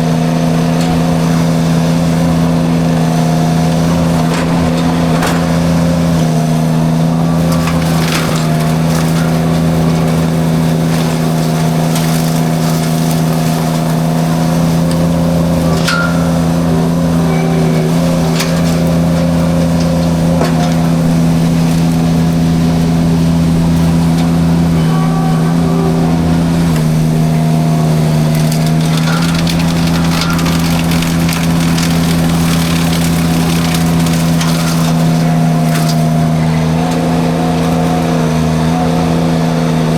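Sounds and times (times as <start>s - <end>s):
drum mulcher cutting brush: 0.0s - 39.9s
skid steer engine drone: 0.0s - 39.9s
sharp cracks: 28.0s - 36.2s.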